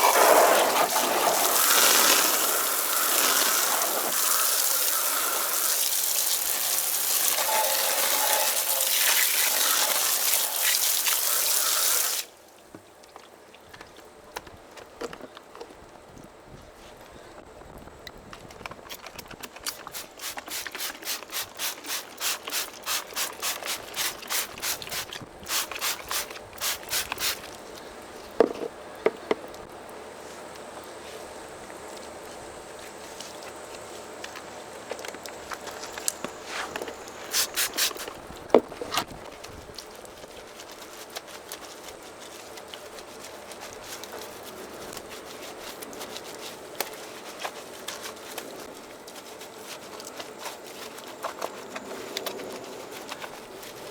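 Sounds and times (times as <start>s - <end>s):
brush scrubbing car wheel: 0.0s - 12.3s, 19.7s - 27.6s, 36.4s - 38.2s, 40.3s - 51.4s.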